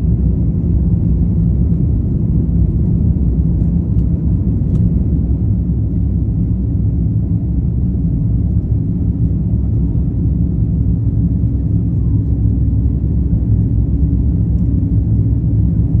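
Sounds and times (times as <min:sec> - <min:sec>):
jet engines at takeoff power: 0:00.0 - 0:16.0.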